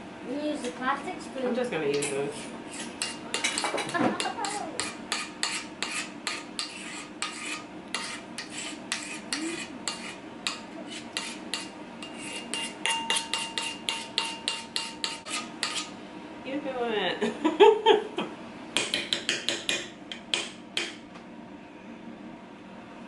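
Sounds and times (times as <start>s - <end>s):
utensil scraping mixing bowl: 1.9s - 16.0s.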